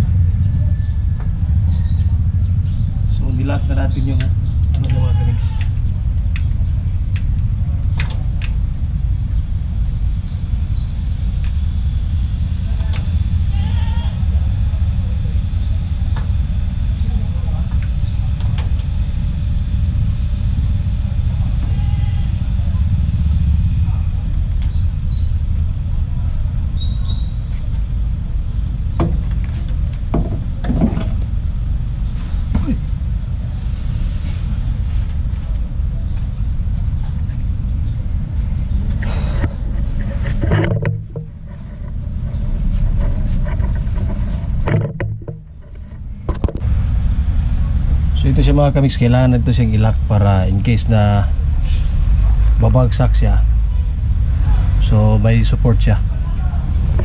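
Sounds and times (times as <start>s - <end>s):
truck engine rumbling: 0.0s - 57.0s
knocks and clicks of work: 29.0s - 29.4s, 30.0s - 31.3s, 40.3s - 41.4s, 44.6s - 45.7s.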